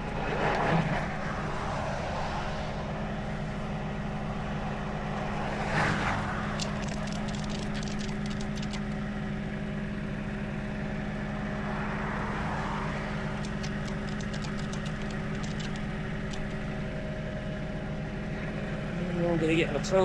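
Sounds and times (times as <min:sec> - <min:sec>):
vehicle passing by: 0:00.0 - 0:17.8
truck engine idling: 0:00.0 - 0:20.0
sharp clicks: 0:06.4 - 0:09.1, 0:12.9 - 0:16.8.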